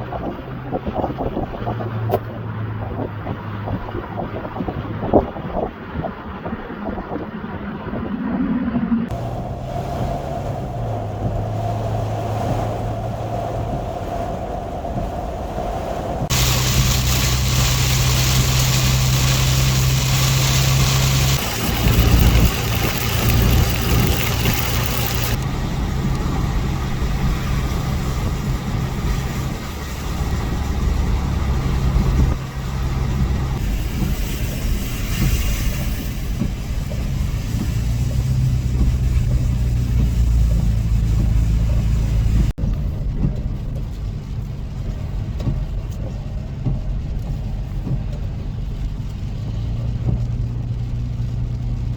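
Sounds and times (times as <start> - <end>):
rain and wet road noise: 0.0 - 6.8, 9.1 - 51.9
car engine humming: 8.0 - 34.0.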